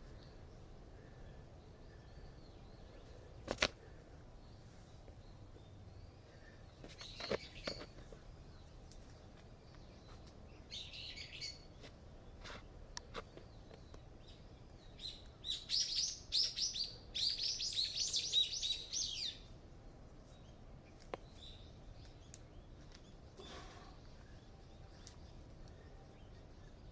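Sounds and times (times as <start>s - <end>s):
songbird singing: 0.0s - 26.9s
faint sharp clicks: 22.0s - 23.1s.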